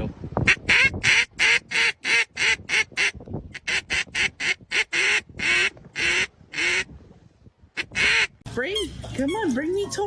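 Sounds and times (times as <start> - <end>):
duck quacking: 0.5 - 6.9, 7.8 - 8.4.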